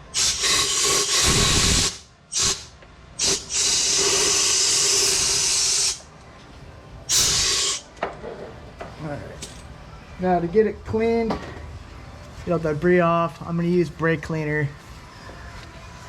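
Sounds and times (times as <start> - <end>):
air blow gun hissing: 0.1 - 6.1, 7.1 - 7.9.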